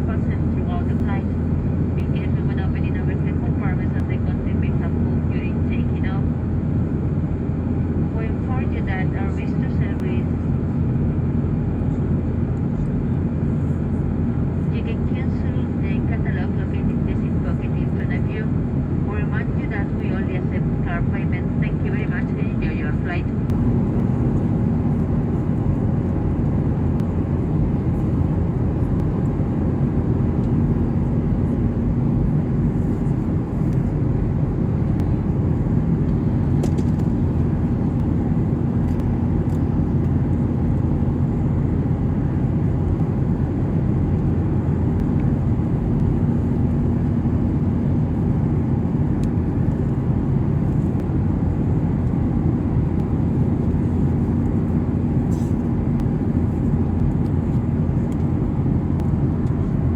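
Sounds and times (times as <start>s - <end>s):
jet engine and airflow rush: 0.0s - 59.9s
low steady hum: 0.0s - 59.9s.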